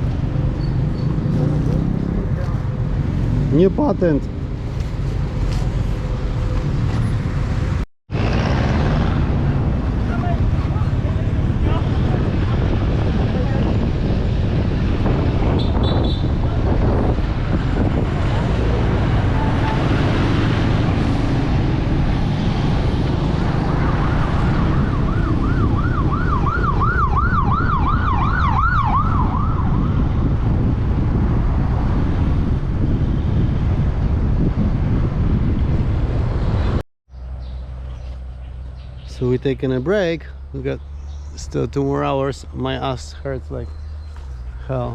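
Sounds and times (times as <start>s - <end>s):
motorcycle engine: 0.0s - 3.6s
wind noise: 0.0s - 36.8s
siren yelping: 23.6s - 30.0s.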